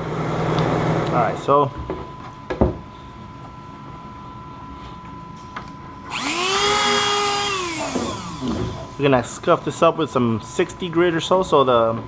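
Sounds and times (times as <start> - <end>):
electric rotary tool whining: 6.1 - 9.0.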